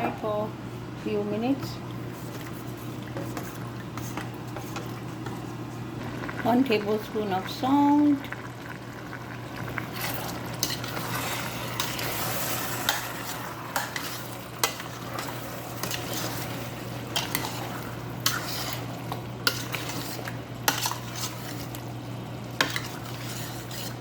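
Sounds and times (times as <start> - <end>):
food sizzling: 2.0 - 24.0
spoon knocking and scraping pot: 22.6 - 24.0.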